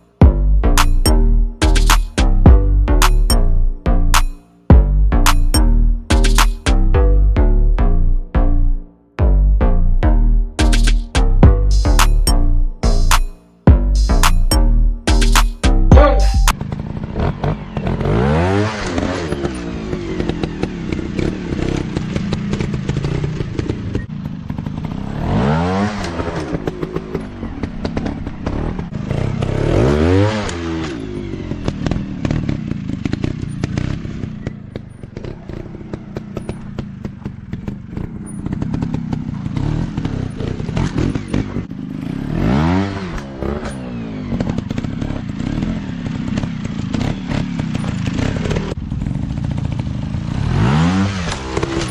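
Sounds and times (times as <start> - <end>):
dirt bike engines revving: 15.1 - 51.9.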